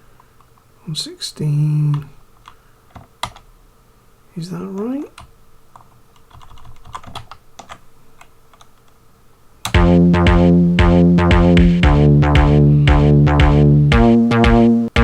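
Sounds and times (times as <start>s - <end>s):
computer keyboard clicking: 2.4s - 3.5s, 5.2s - 9.0s
sampled tracker music: 9.7s - 15.0s
kick drum: 9.8s - 15.0s.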